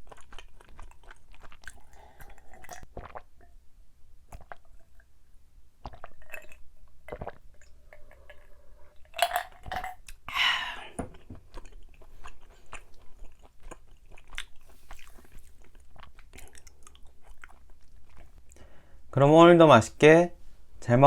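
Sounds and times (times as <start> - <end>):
chewing sticky rice cake: 0.0 - 3.2, 11.5 - 18.5.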